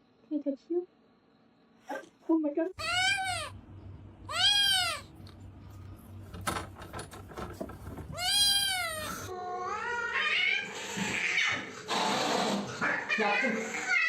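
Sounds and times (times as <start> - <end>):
cat meowing: 2.8 - 3.6, 4.3 - 5.1, 8.1 - 11.6.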